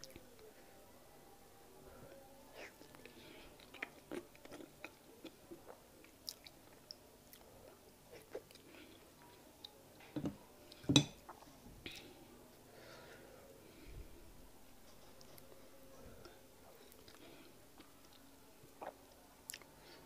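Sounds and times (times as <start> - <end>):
close chewing with wet smacks: 3.6 - 7.5.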